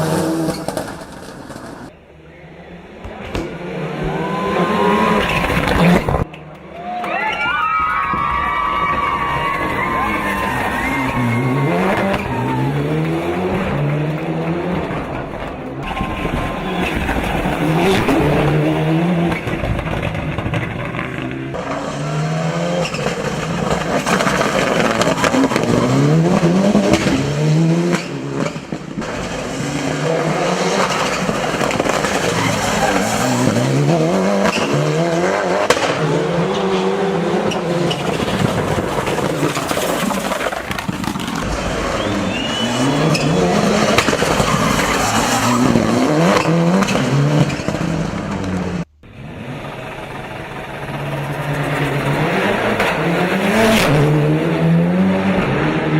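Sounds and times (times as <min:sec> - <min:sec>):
race car engine revving: 0:02.8 - 0:06.6, 0:09.6 - 0:55.9
tyre squeal: 0:41.8 - 0:47.0.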